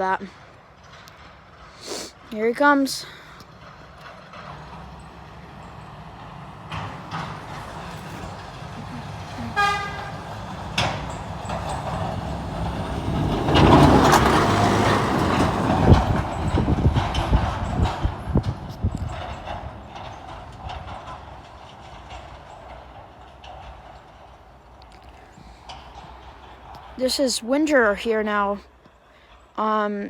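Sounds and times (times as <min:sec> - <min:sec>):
truck rumbling past: 0:00.0 - 0:29.6
short horn toot: 0:09.4 - 0:10.2.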